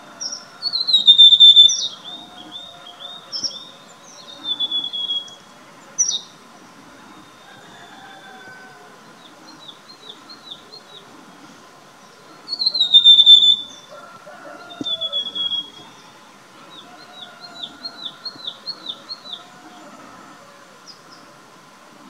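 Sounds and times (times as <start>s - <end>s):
bird song of rapid high notes: 12.5s - 13.9s.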